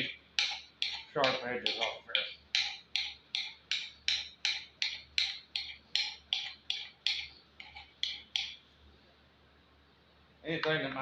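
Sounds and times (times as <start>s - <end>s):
file rasping on steel: 0.4s - 8.5s.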